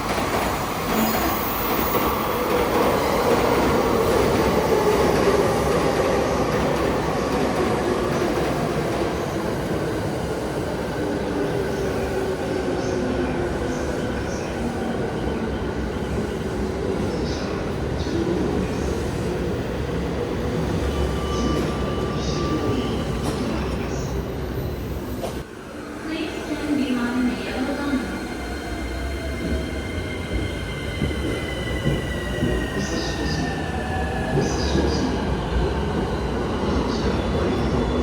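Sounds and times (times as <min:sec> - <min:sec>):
train wheels rumbling on rails: 0:26.7 - 0:38.0.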